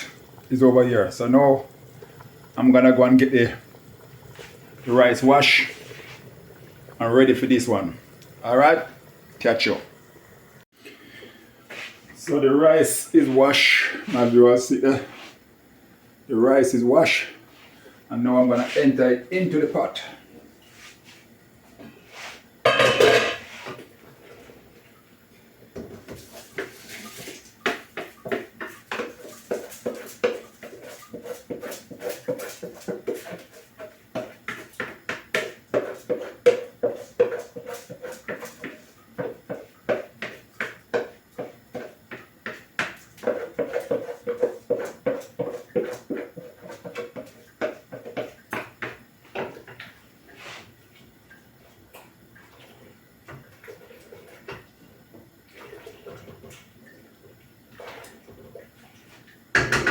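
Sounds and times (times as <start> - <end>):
spoon scraping against pot: 22.2 - 23.8, 26.2 - 48.4.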